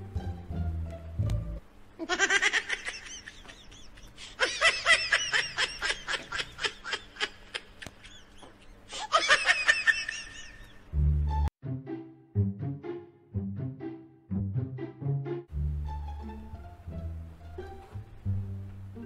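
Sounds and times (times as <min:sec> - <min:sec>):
high-pitched giggling: 0:02.0 - 0:10.8.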